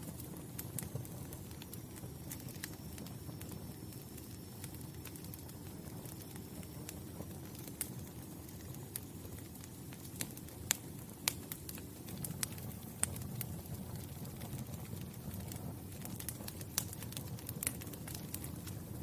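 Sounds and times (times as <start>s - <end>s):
fire crackling and popping: 0.0s - 19.0s
wood fire rumbling: 0.0s - 19.0s.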